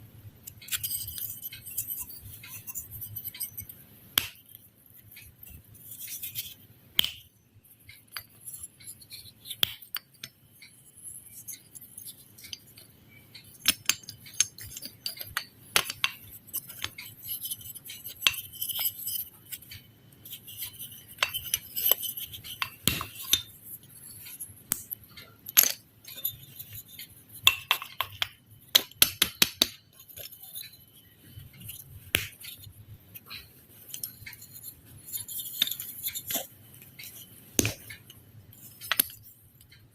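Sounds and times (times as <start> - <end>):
hard objects tapping and clinking: 11.4 - 39.9.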